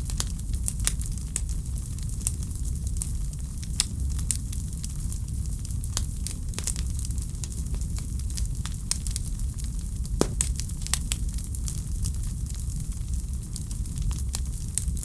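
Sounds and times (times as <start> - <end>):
wood fire crackling and popping: 10.2 - 11.6.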